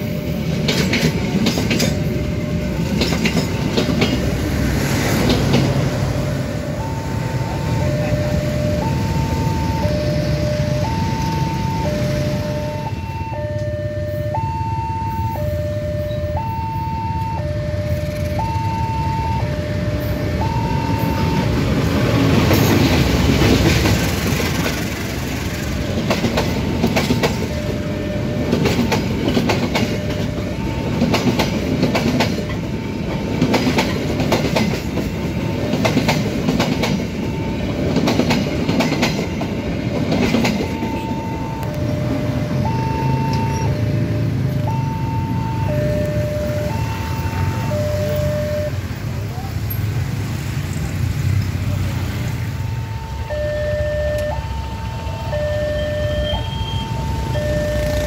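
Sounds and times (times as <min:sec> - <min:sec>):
passing train rumble: 0:00.0 - 0:58.0
wheels clacking over rail joints: 0:00.3 - 0:12.4, 0:20.2 - 0:48.2
level crossing alarm tones: 0:05.1 - 0:23.8, 0:25.8 - 0:49.0, 0:52.2 - 0:58.0.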